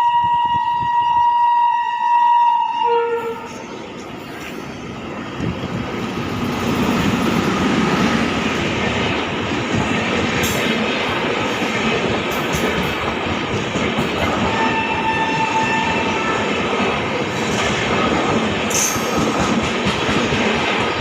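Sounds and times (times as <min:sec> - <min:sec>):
locomotive horn: 0:00.0 - 0:03.6, 0:14.5 - 0:16.5
train passing rumble: 0:00.0 - 0:21.0.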